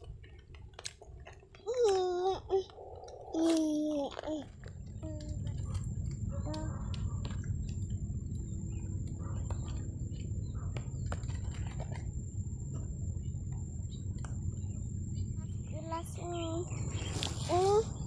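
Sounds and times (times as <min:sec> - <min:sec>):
small clicks and crackles: 0:00.0 - 0:12.9
strong wind rumble: 0:02.4 - 0:18.0.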